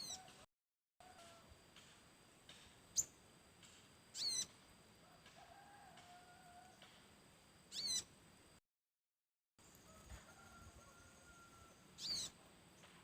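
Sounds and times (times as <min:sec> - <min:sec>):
small bird high-pitched chirps: 0:00.0 - 0:00.3, 0:02.9 - 0:03.2, 0:04.1 - 0:04.6, 0:07.7 - 0:08.1, 0:11.6 - 0:12.9.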